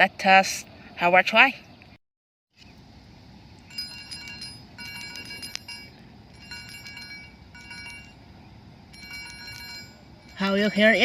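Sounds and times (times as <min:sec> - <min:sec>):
metal chime ball shaken: 0:03.7 - 0:11.0.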